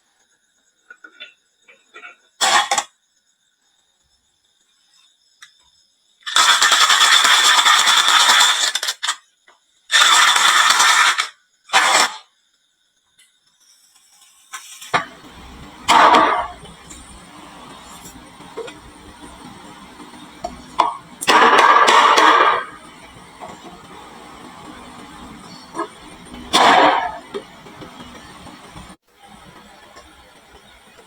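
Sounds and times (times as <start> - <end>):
marbles rolling down wooden track: 20.4 - 22.8.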